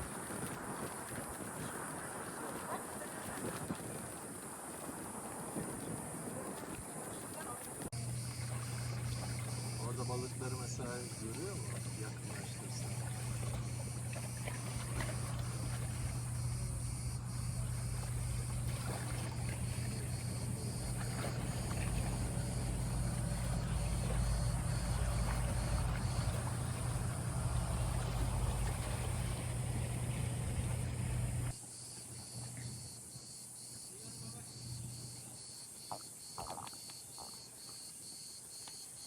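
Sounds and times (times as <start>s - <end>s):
water noise: 0.0s - 32.5s
motorboat engine humming: 4.7s - 31.6s.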